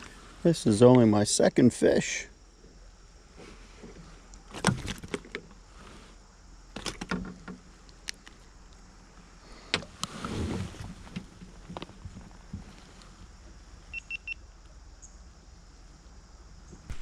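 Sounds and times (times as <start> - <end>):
knocks and clicks in a kayak: 3.8 - 5.6, 6.7 - 8.3
dull thumps: 16.8 - 17.0.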